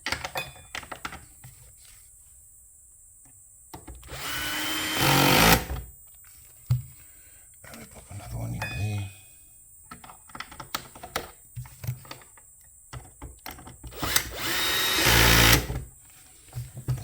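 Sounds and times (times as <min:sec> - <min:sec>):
cordless drill driving a screw: 0:04.0 - 0:05.8, 0:13.9 - 0:15.8.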